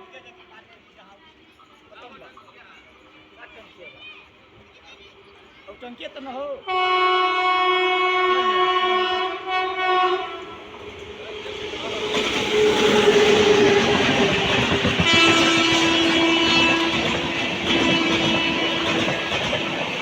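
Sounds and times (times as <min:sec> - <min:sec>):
train rumble and wheel clatter: 0:00.0 - 0:20.0
train horn: 0:06.6 - 0:10.8, 0:12.0 - 0:20.0.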